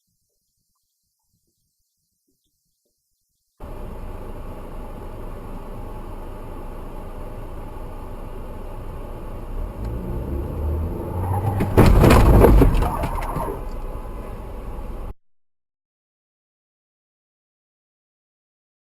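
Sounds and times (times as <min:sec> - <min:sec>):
car engine and road noise: 0:03.6 - 0:15.2.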